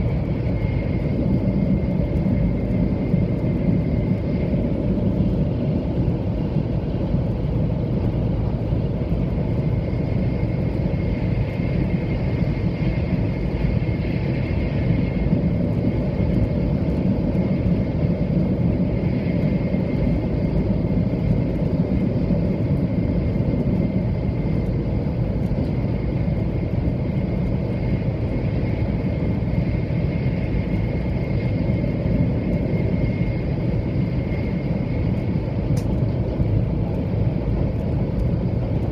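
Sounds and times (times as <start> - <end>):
faint high whine: 0.0 - 38.9
train interior low rumble: 0.0 - 38.9.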